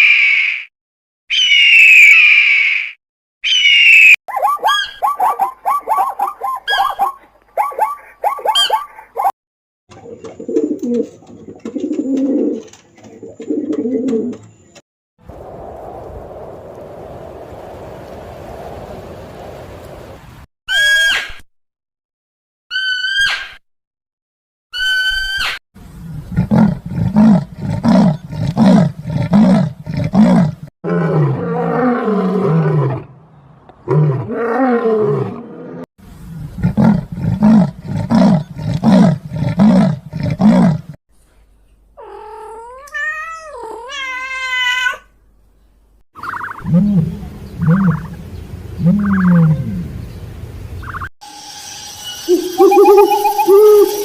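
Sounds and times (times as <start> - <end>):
big cat grunting roars: 26.3 - 33.1.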